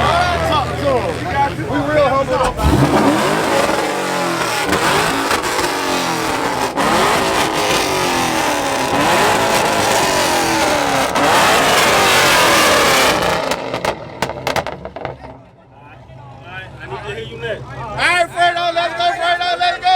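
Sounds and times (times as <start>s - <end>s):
car engine revving: 0.0s - 15.4s.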